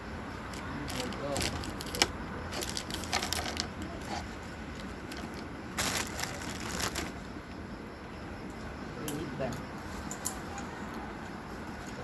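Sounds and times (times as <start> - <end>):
engine parts clicking and knocking: 0.3 - 7.2.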